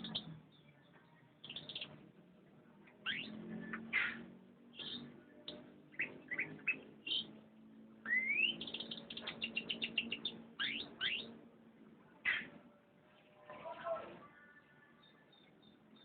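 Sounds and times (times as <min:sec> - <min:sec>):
canary singing: 0:00.0 - 0:02.2, 0:02.8 - 0:11.5, 0:12.2 - 0:16.0.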